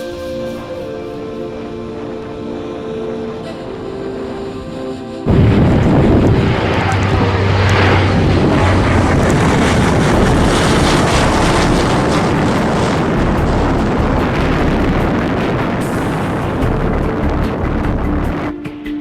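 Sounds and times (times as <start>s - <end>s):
turboprop aircraft engines droning: 0.0s - 18.8s
wind noise on microphone: 0.0s - 19.0s.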